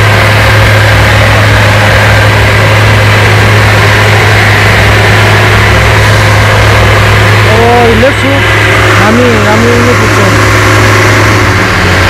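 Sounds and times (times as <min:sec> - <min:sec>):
road noise: 0:00.0 - 0:12.0
truck engine hum: 0:00.0 - 0:12.0.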